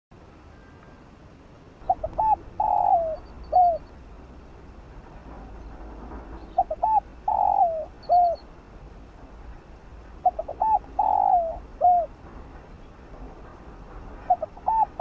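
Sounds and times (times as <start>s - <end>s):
dove cooing: 1.8s - 3.9s, 6.4s - 8.5s, 10.2s - 12.2s, 14.3s - 15.0s.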